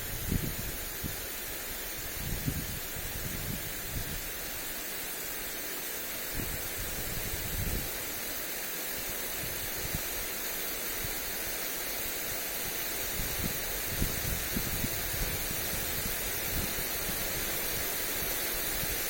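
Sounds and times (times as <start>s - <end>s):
wind gusting on microphone: 0.0s - 4.6s, 6.3s - 8.0s, 9.4s - 10.2s, 12.6s - 19.0s
lawn sprinkler hissing: 0.0s - 19.0s.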